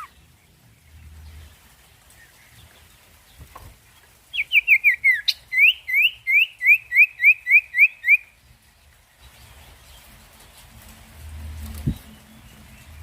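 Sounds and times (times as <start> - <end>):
bird singing: 0.0 - 8.4.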